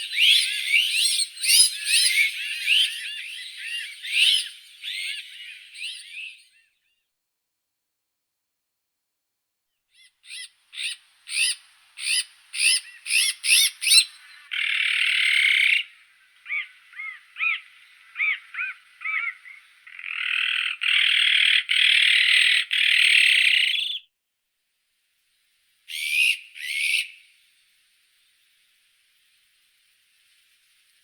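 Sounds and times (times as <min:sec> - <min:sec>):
magpie calling: 0:00.0 - 0:06.3, 0:10.0 - 0:24.0, 0:25.9 - 0:27.2
harsh rasping bird call: 0:10.2 - 0:24.0.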